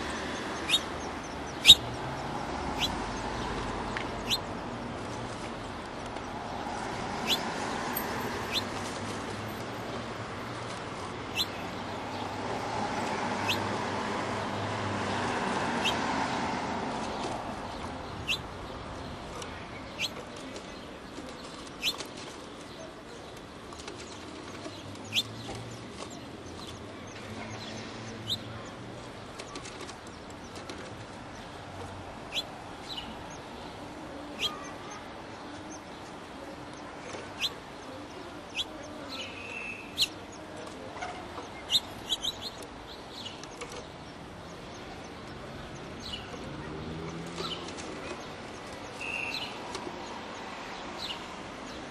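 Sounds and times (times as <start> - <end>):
small bird chirping: 0.0 - 3.2, 3.9 - 4.6, 7.2 - 8.8, 11.3 - 12.4, 13.4 - 13.7, 15.8 - 16.0, 17.1 - 18.7, 19.4 - 20.4, 21.2 - 22.1, 23.3 - 33.6, 34.4 - 36.0, 36.7 - 40.4, 41.4 - 49.7
steady outdoor hiss: 0.0 - 51.9.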